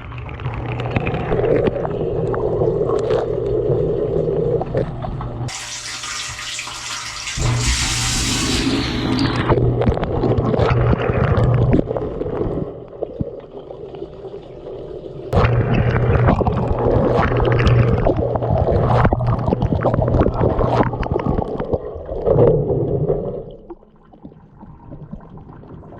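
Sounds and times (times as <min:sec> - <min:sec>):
dishwasher pump humming: 0:05.1 - 0:11.2
water spraying and splashing: 0:05.5 - 0:09.6.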